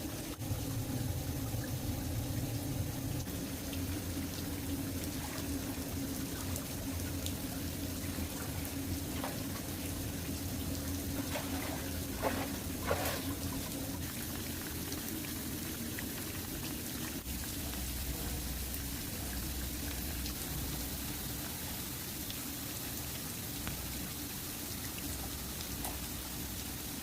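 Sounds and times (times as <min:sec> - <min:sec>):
water splashing: 0:00.0 - 0:21.4
patter and rush of water: 0:00.0 - 0:27.0.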